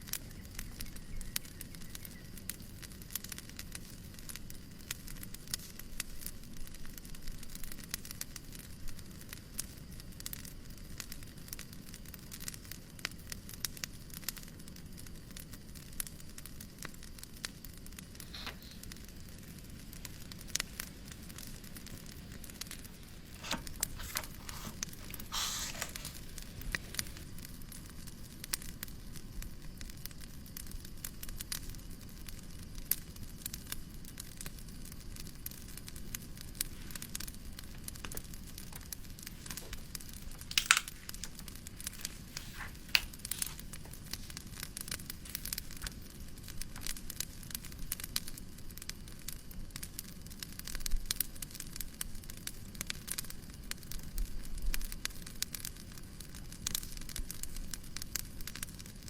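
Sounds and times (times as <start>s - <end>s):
low hiss of white noise: 0.0s - 59.0s
wood fire crackling: 0.0s - 59.0s.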